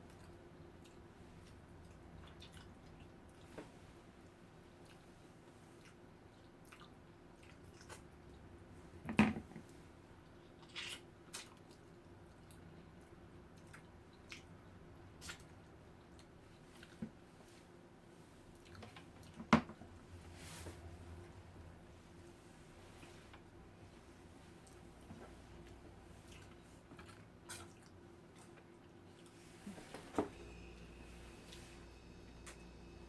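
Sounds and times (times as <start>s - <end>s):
person chewing close up: 0.0s - 3.5s, 4.7s - 8.4s, 10.2s - 17.0s, 18.5s - 19.4s, 25.6s - 29.4s.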